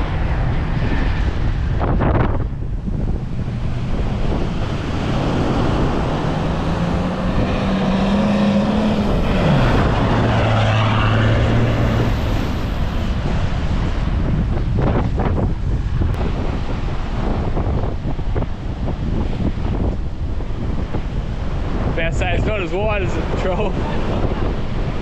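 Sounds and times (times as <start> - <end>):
vehicle engine driving: 0.0 - 17.7
wind buffeting microphone: 0.0 - 25.0.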